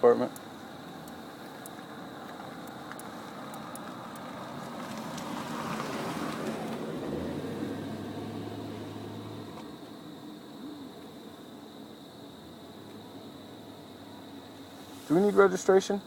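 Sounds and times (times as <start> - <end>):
low engine hum: 0.4 - 15.0
vehicle passing by: 1.9 - 9.7.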